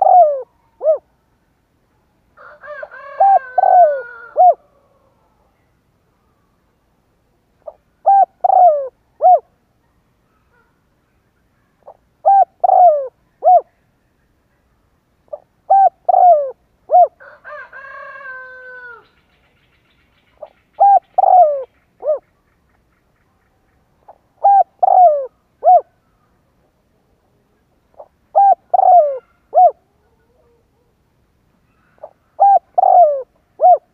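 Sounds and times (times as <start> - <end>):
dove cooing: 0.0 - 1.1, 2.4 - 5.2, 7.6 - 9.6, 11.8 - 13.8, 15.3 - 19.0, 20.4 - 22.2, 24.0 - 26.0, 27.1 - 30.9, 31.7 - 33.9.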